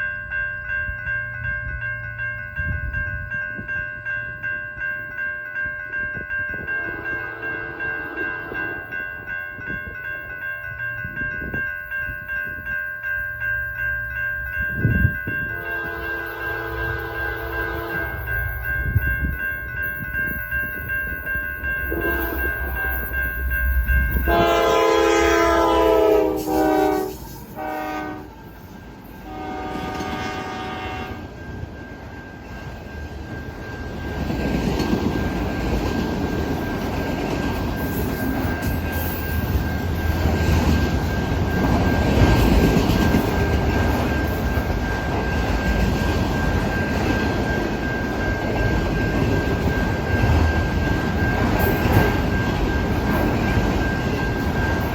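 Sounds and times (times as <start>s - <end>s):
crossing signal bell: 0.0s - 54.9s
train wheels rumbling on rails: 0.0s - 54.9s
train horn blasts: 6.8s - 8.7s, 15.4s - 18.4s, 21.9s - 23.1s, 24.2s - 28.4s, 29.2s - 31.4s.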